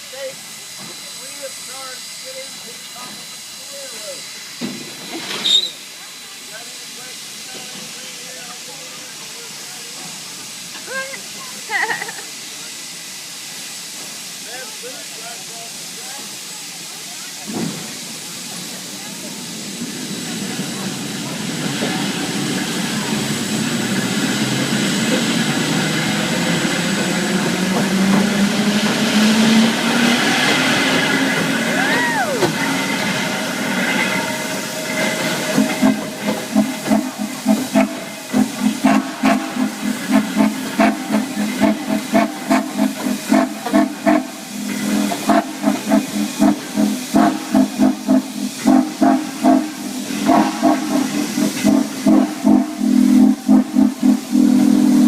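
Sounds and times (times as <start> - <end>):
steam hissing: 0.0 - 55.0
locomotive exhaust chuffs: 12.3 - 55.0.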